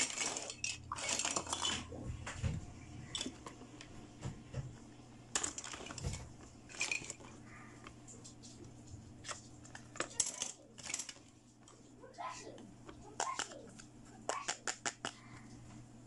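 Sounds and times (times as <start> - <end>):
plastic toy pieces clattering: 0.0 - 2.0, 3.1 - 3.6, 5.3 - 7.4, 9.2 - 11.3, 13.1 - 13.7.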